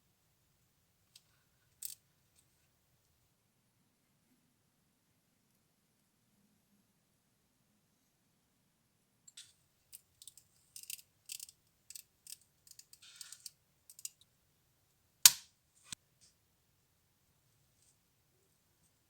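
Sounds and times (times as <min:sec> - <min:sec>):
small parts clicking and scraping: 0:01.1 - 0:02.5, 0:09.3 - 0:14.2.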